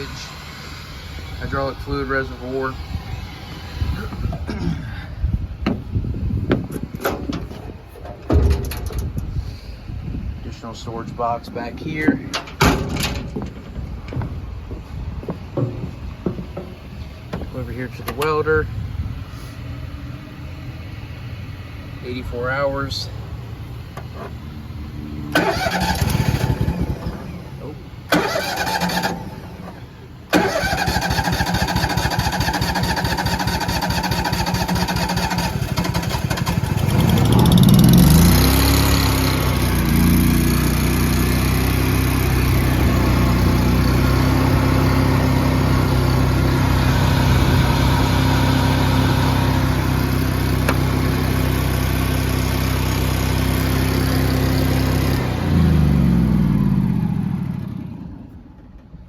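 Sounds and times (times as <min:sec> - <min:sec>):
welder engine starting and running: 0:00.0 - 0:05.0, 0:19.2 - 0:58.6.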